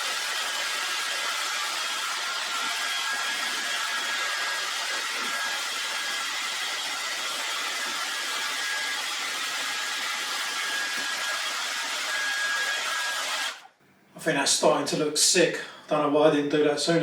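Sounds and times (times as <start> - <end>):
hot-air blower whining: 0.0 - 13.7.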